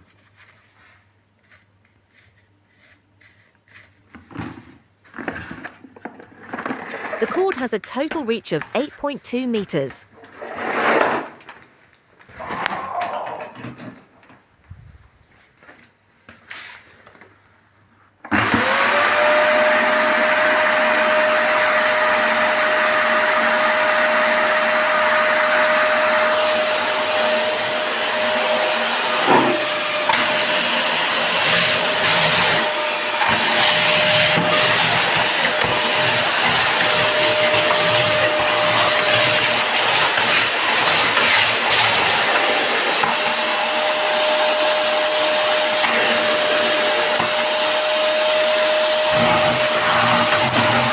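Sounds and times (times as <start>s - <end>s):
vacuum cleaner motor whine: 18.3s - 50.9s.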